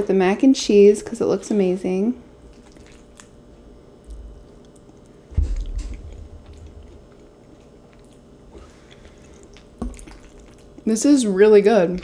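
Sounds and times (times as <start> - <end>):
person chewing food: 2.4 - 10.9
wet mouth sounds: 2.5 - 3.4, 4.0 - 10.9
dull low thump: 5.3 - 6.5.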